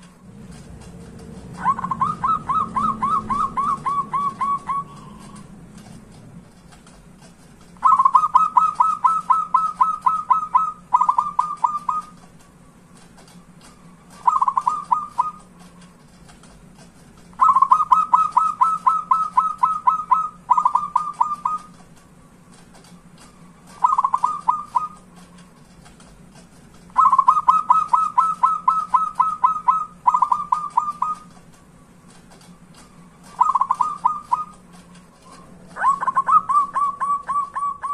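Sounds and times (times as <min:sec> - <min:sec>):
dove cooing: 0:01.4 - 0:05.5, 0:07.8 - 0:12.2, 0:14.0 - 0:15.5, 0:17.4 - 0:21.8, 0:23.6 - 0:25.1, 0:26.9 - 0:31.4, 0:33.0 - 0:34.7, 0:35.3 - 0:37.9.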